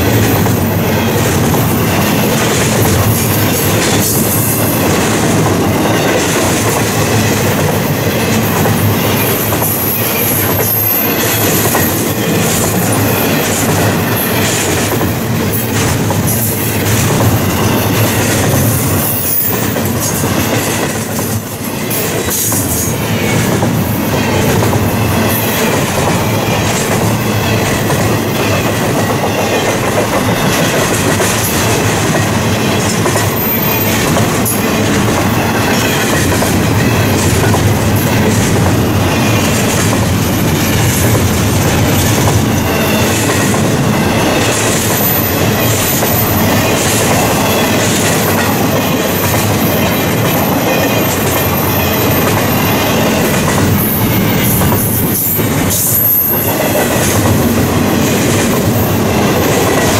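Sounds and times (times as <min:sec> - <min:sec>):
train wheels clattering over joints: 0:00.0 - 0:59.9
high wheel squeals: 0:32.6 - 0:37.1, 0:41.8 - 0:57.0.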